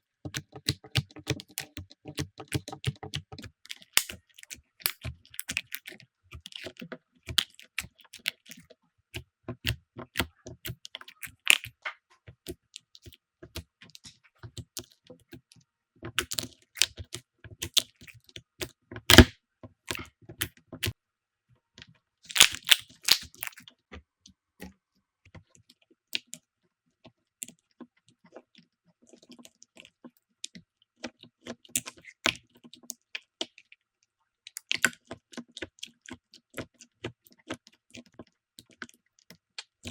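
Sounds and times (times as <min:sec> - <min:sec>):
slime squeezed sticky clicks: 0:03.7 - 0:04.2, 0:22.3 - 0:23.6
sharp snap: 0:19.1 - 0:19.3.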